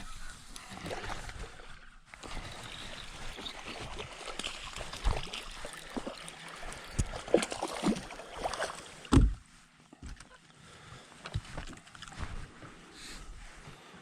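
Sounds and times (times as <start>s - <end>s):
splashing water: 0.6s - 9.2s
knocks on a boat: 9.1s - 9.4s.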